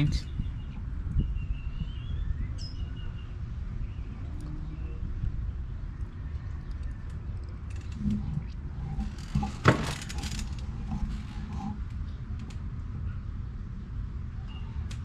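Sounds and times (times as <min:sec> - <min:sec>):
faint clicks: 0:06.0 - 0:12.6.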